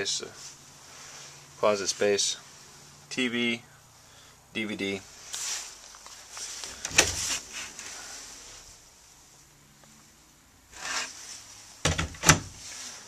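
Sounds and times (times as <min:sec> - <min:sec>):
rubbing and scraping handling noise: 0:05.0 - 0:08.9, 0:10.7 - 0:13.0.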